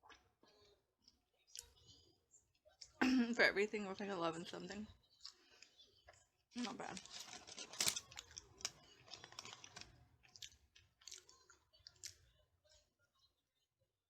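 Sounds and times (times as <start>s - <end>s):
chewing with wet smacks: 0.0s - 2.0s, 8.0s - 12.3s.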